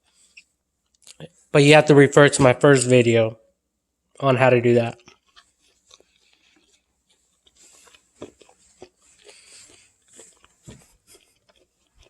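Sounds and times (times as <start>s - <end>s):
person chewing food: 0.0s - 1.4s, 4.8s - 12.0s.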